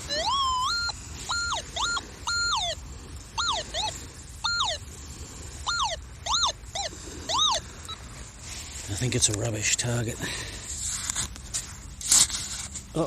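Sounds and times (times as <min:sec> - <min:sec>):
metal detector tones: 0:00.0 - 0:02.8, 0:03.4 - 0:04.8.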